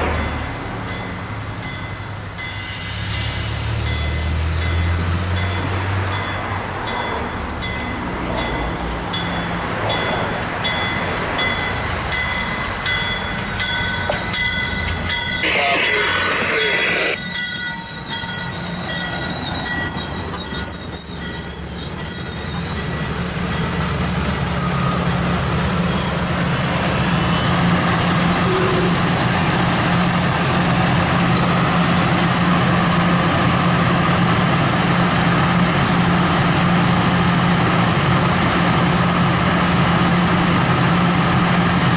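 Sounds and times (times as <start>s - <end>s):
diesel locomotive engine hum: 0.0s - 41.9s
train wheels squealing: 2.4s - 4.4s, 9.3s - 15.3s, 17.2s - 29.0s
train wheels clicking over rail joints: 7.7s - 15.4s.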